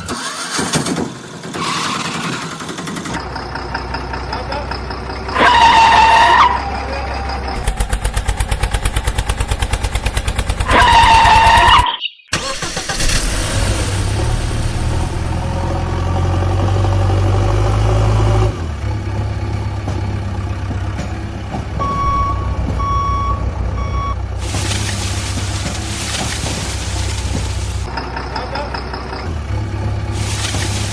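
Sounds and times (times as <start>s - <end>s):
engine chugging: 0.0s - 11.9s, 13.8s - 30.9s
engine hum: 0.0s - 30.9s
reversing alarm beeps: 21.8s - 24.2s.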